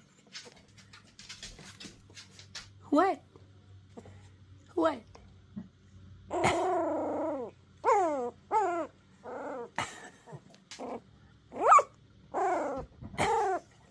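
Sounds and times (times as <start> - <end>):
puppy yowling barks: 6.3 - 9.7, 11.5 - 13.6.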